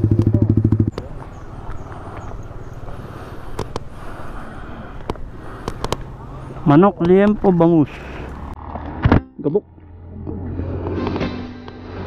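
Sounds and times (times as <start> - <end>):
motorcycle engine idling: 0.0 - 2.8.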